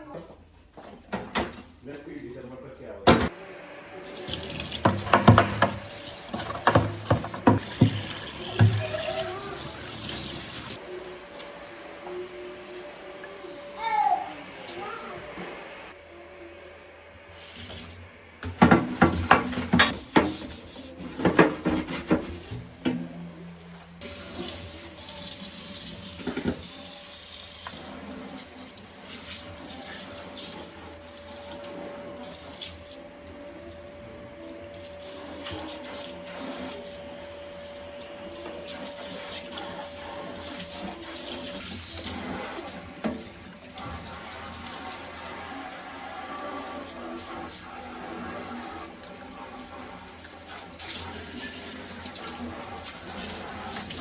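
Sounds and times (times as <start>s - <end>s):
tap running into sink: 4.3s - 10.8s, 18.4s - 20.6s.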